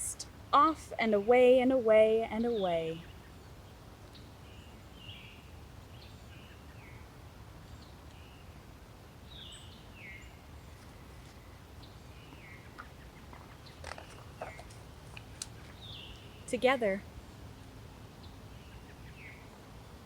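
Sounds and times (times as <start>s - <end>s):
faint steady hiss: 0.0s - 20.0s
bird calling: 11.2s - 16.9s.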